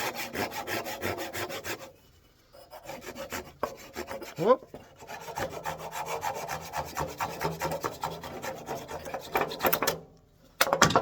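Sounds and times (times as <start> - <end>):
hand saw cutting wood: 0.0 - 2.0, 2.6 - 10.0
clatter of knocks: 10.6 - 11.0.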